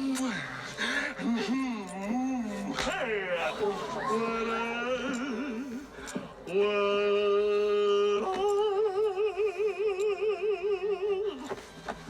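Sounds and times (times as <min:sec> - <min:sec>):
person singing long notes: 0:06.5 - 0:11.5.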